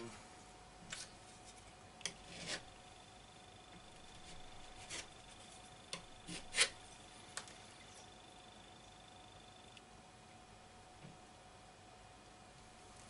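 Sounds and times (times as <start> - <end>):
filler knife scraping plaster: 2.0 - 2.7, 4.2 - 5.6, 6.2 - 6.8.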